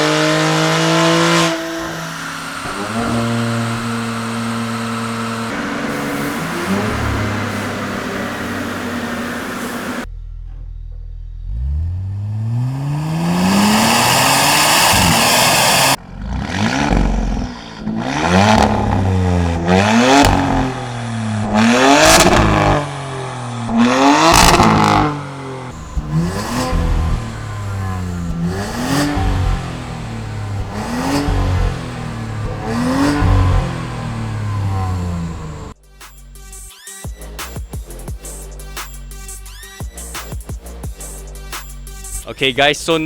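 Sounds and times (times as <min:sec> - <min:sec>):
car engine revving: 0:00.0 - 0:10.1, 0:11.4 - 0:35.8.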